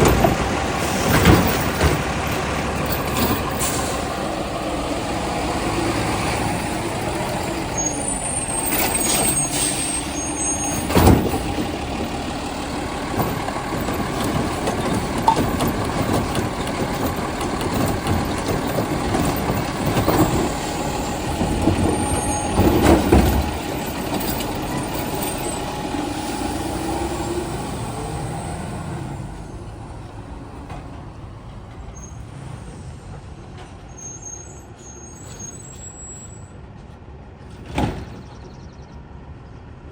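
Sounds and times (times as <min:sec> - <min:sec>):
loud bangs: 0:00.0 - 0:26.8
garbage truck engine and hydraulics: 0:00.0 - 0:39.9.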